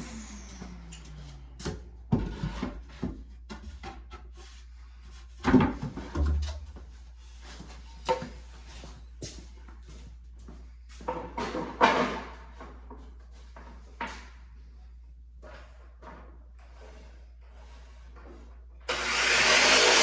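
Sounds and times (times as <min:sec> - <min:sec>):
power tool motor winding down: 0:00.0 - 0:01.5, 0:18.9 - 0:20.0.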